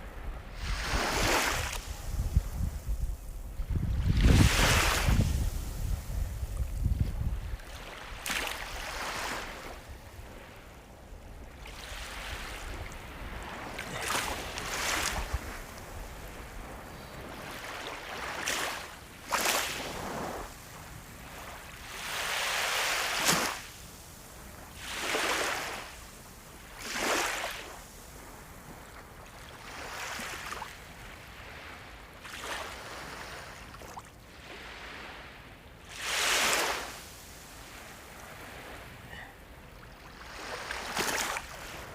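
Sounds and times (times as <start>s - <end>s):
ocean waves breaking on shore: 0.0s - 41.9s.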